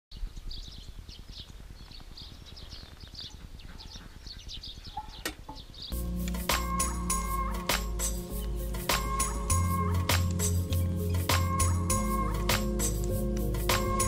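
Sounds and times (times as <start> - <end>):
songbirds chirping: 0.1 - 14.0.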